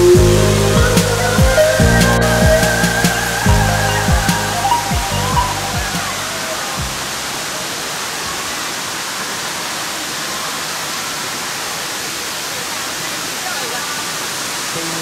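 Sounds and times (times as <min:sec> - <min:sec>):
music with low bass notes: 0:00.0 - 0:07.2
waterfall rushing: 0:00.0 - 0:15.0.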